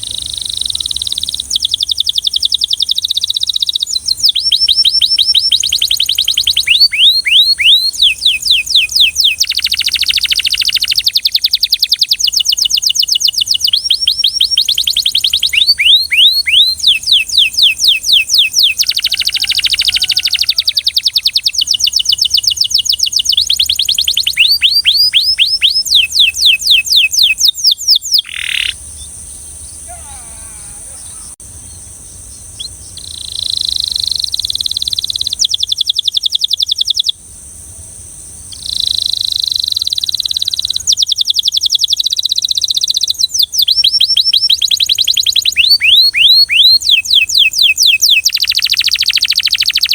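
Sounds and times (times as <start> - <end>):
steady high hiss: 0.0 - 7.0, 28.2 - 42.4
canary singing trills: 0.0 - 37.2, 38.4 - 49.9.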